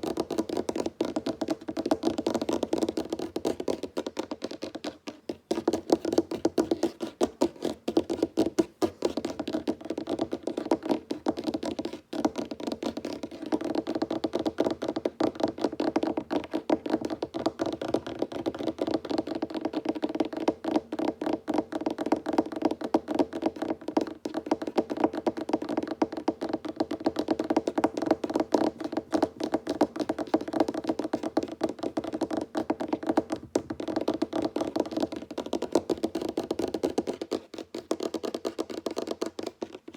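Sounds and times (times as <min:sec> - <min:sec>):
fingers tapping on wooden table: 0:13.0 - 0:39.7.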